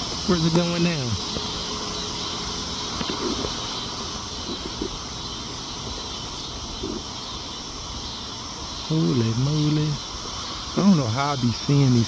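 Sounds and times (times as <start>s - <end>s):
background hiss: 0.0s - 12.0s
high-pitched insect drone: 0.0s - 12.0s.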